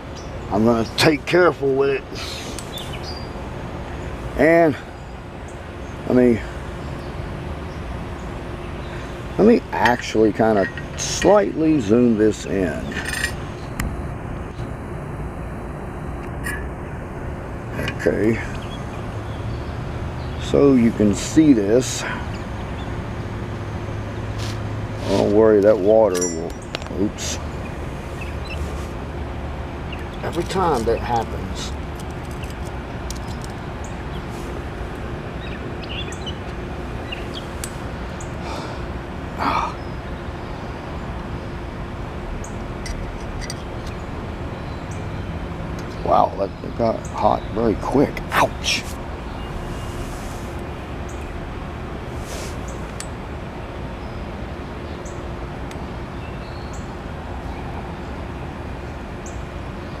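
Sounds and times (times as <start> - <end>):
torch flame hissing: 52.1 - 53.0.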